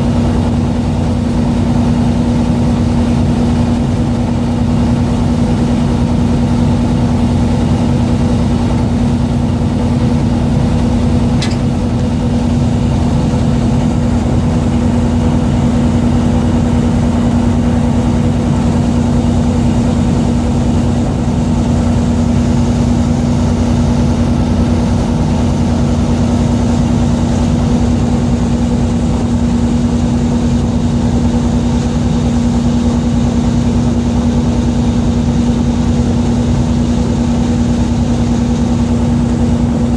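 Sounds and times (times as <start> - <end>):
boat engine running: 0.0 - 39.9
short click: 11.4 - 11.9.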